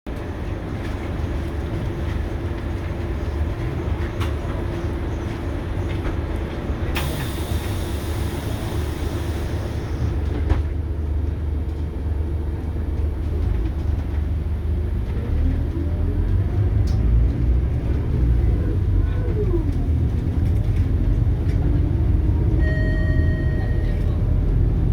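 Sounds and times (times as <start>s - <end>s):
bus diesel engine rumbling: 0.1s - 24.9s.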